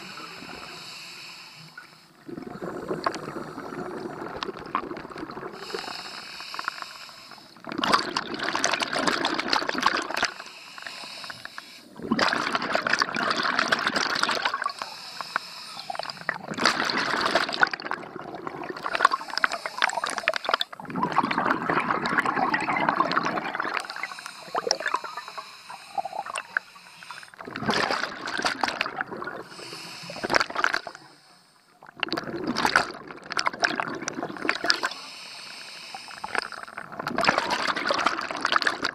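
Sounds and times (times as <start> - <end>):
diver breathing through regulator: 0.0 - 4.2, 5.5 - 7.6, 10.2 - 12.0, 14.6 - 16.4, 18.8 - 20.8, 23.3 - 27.4, 29.4 - 31.7, 34.7 - 36.8
exhaled bubbles rushing: 2.2 - 6.0, 7.6 - 10.4, 12.0 - 14.8, 15.8 - 31.0, 31.8 - 35.0, 36.2 - 38.9.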